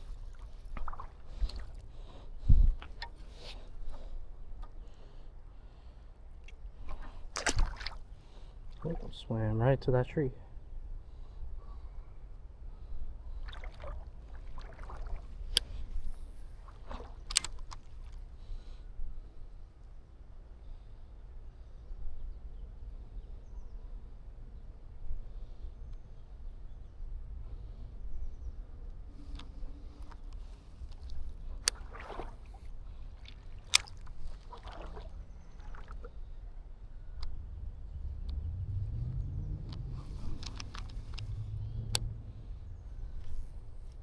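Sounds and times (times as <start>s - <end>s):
creek water splashing: 0.0s - 4.0s, 6.5s - 9.2s, 13.4s - 18.2s, 31.0s - 36.2s
low rumble: 37.0s - 43.9s
sharp clicks: 39.7s - 42.1s.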